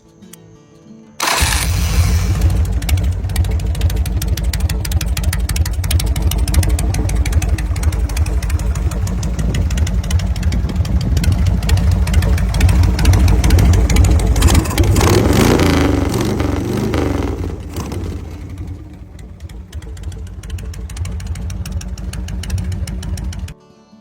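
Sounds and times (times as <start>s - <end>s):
motorcycle engine running: 1.2s - 23.6s.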